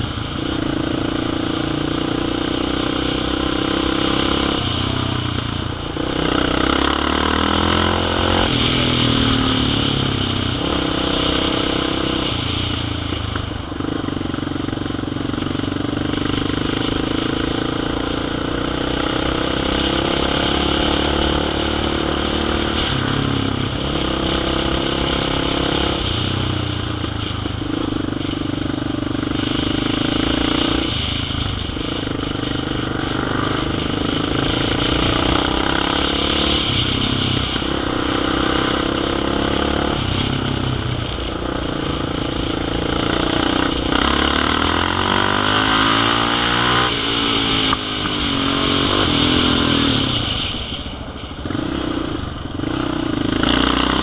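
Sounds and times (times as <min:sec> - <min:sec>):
dirt bike engine revving: 0:05.8 - 0:12.6, 0:27.2 - 0:50.6, 0:51.4 - 0:54.0.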